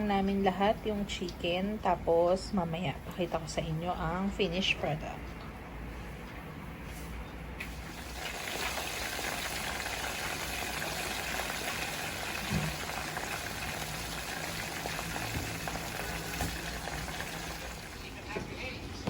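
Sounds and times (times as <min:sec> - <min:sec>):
chicken frying in hot oil: 0:07.6 - 0:18.4.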